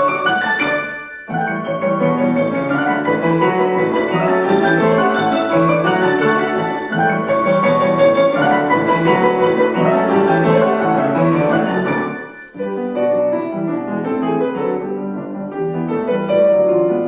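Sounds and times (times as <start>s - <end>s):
piano fast run of notes: 0.0s - 17.0s.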